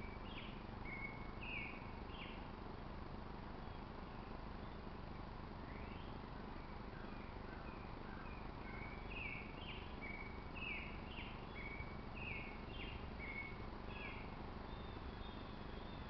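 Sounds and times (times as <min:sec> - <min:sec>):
bird chirping: 0:00.0 - 0:02.4, 0:07.0 - 0:16.0
low background rumble: 0:00.0 - 0:16.0.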